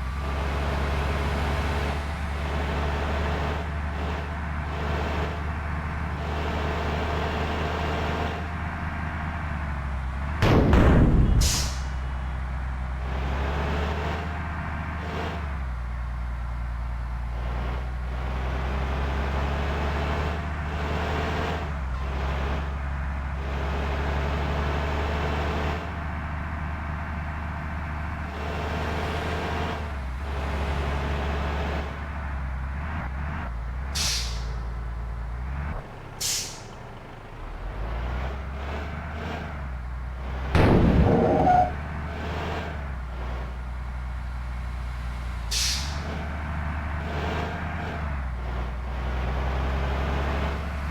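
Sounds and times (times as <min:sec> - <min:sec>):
bus diesel engine running: 0:00.0 - 0:50.9
loud brief burst: 0:10.4 - 0:12.1, 0:40.6 - 0:42.0
air brake hisses: 0:11.3 - 0:12.1, 0:34.0 - 0:34.6, 0:36.2 - 0:36.7, 0:45.5 - 0:46.0.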